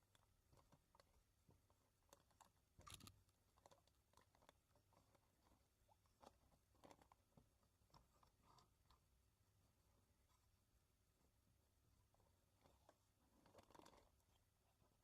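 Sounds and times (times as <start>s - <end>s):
small clicks: 2.4s - 3.8s
brief rustle: 2.8s - 3.2s.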